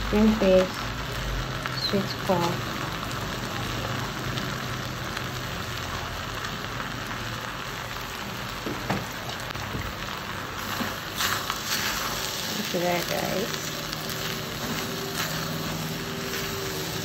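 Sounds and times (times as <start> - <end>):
fried rice sizzling in a pot: 0.0 - 17.0.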